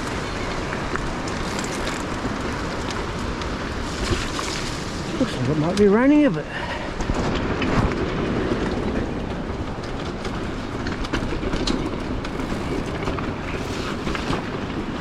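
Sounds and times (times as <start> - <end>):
tyres crunching on stones: 0.0 - 5.9
bike rattling with clicks and knocks: 0.0 - 15.0
wind on microphone: 0.0 - 15.0.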